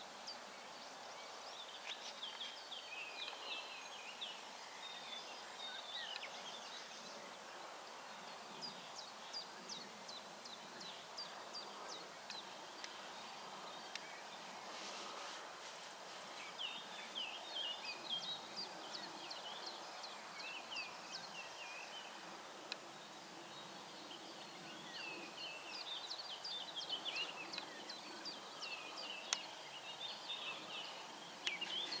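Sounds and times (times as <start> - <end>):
faint outdoor hiss: 0.0 - 32.0
bird chirping: 16.2 - 32.0.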